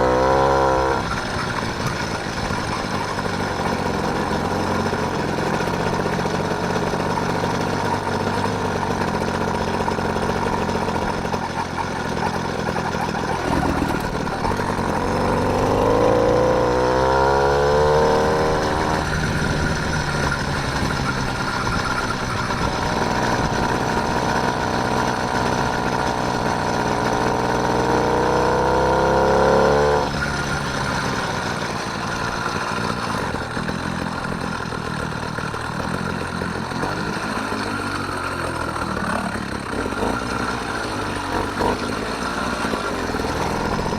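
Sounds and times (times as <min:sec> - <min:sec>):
small bicycle engine running: 0:00.0 - 0:28.4, 0:29.0 - 0:43.9.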